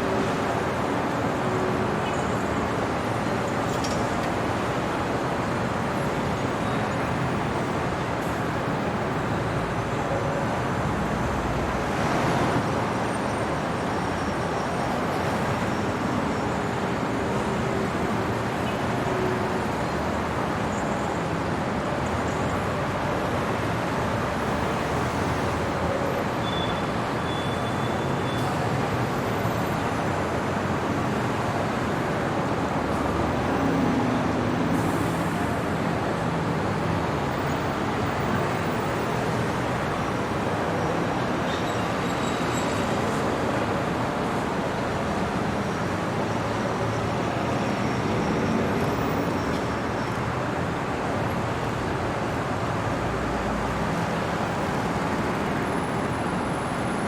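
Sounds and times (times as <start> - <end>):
road noise from passing vehicles: 0.0 - 57.0.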